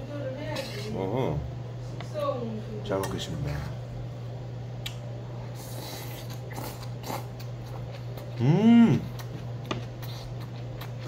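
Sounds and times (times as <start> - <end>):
low electrical hum: 0.0 - 11.0
man chewing with wet clicks: 4.8 - 5.0, 5.7 - 11.0
man humming mmm: 8.3 - 9.3.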